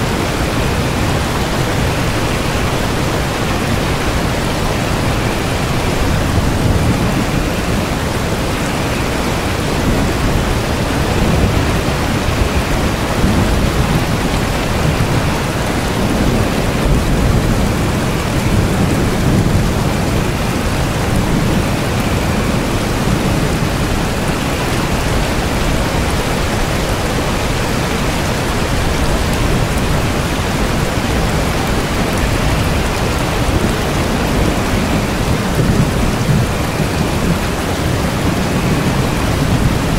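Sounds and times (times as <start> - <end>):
low thunder rumble: 0.0 - 39.9
steady rain: 0.0 - 39.9.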